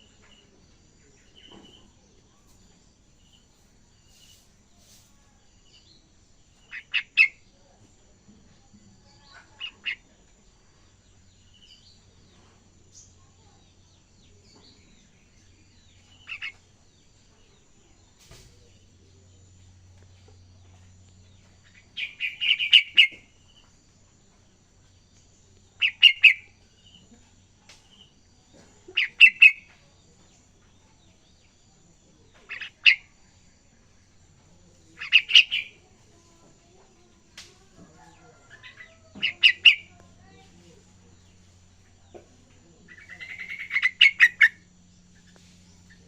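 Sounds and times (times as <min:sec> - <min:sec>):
bird rapid chirping bursts: 0:22.0 - 0:23.2, 0:25.8 - 0:26.5, 0:43.0 - 0:44.6.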